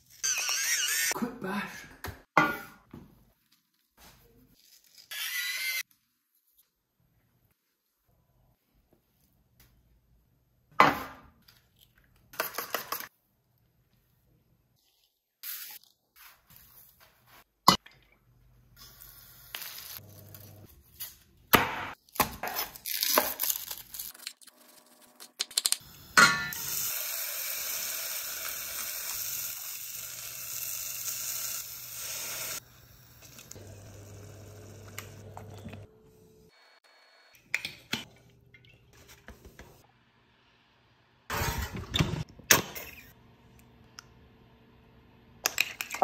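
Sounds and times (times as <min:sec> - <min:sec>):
food sizzling in a hot pan: 0:26.5 - 0:33.6.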